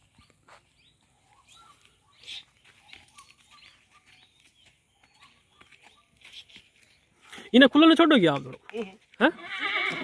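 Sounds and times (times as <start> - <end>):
soft ticks and scuffs: 0.0 - 7.5
faint small birds chirping: 0.0 - 7.8.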